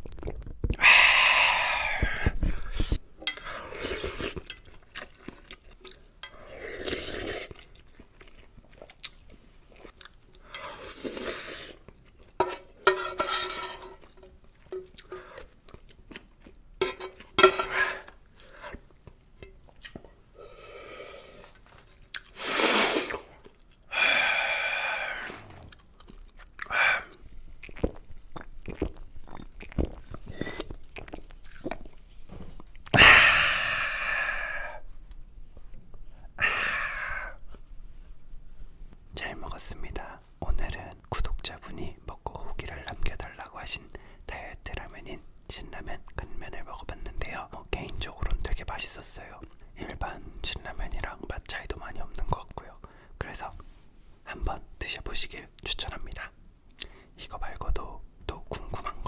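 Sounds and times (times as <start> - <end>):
person chewing noodles: 0.0 - 12.4, 14.0 - 32.0.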